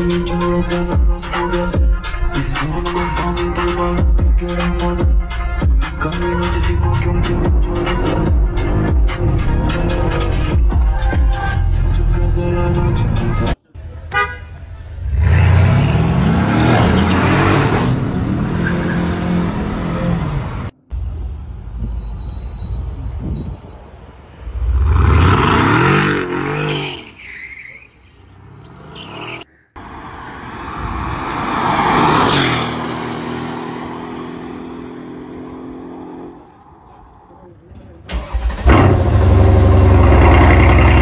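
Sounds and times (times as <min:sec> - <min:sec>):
car engine revving hard: 0:15.0 - 0:20.4, 0:24.6 - 0:26.8, 0:38.2 - 0:41.0
car passing by at speed: 0:29.8 - 0:37.3.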